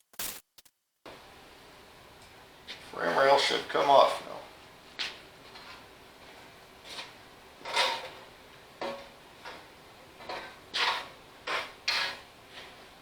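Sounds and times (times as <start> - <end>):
metal clunks and scrapes: 6.9 - 12.8.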